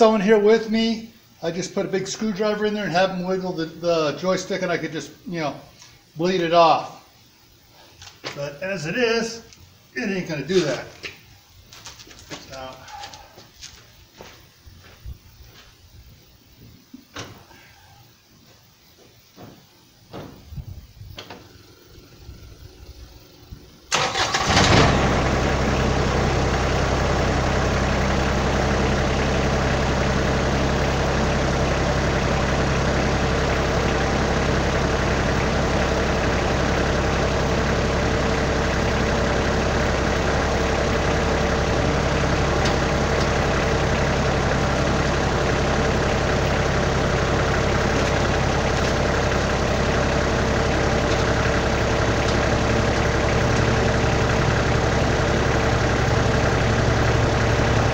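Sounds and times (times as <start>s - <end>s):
diesel tractor engine starting and idling: 0.0s - 4.9s, 21.3s - 57.9s.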